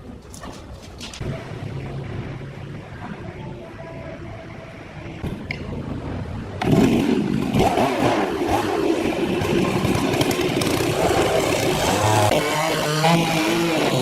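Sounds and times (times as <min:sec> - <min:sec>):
chainsaw cutting wood: 0:06.6 - 0:14.0.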